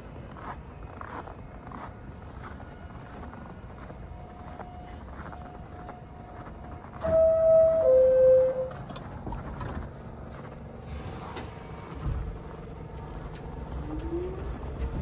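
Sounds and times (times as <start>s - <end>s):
train rumble: 0.0s - 15.0s
two-note descending chime: 7.0s - 8.8s.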